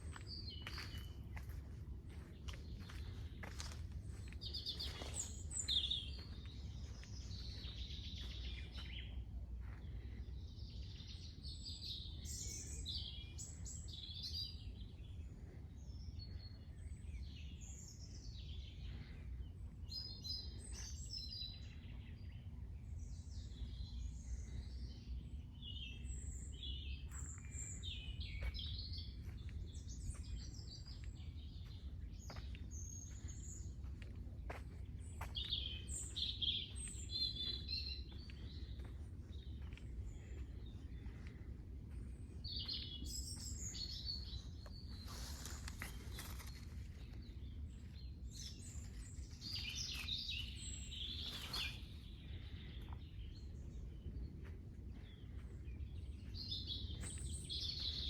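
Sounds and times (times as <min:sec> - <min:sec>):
low outdoor rumble: 0:00.0 - 0:11.2, 0:27.1 - 0:58.0
birds singing and chirping: 0:00.0 - 0:58.0.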